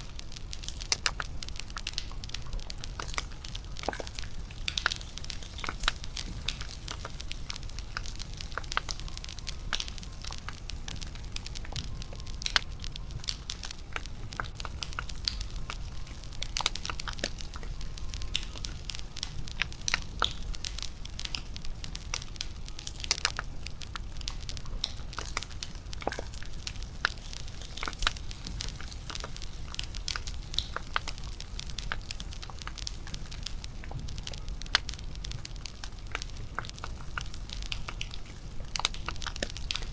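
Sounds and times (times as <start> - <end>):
bonfire crackling and popping: 0.0 - 39.9.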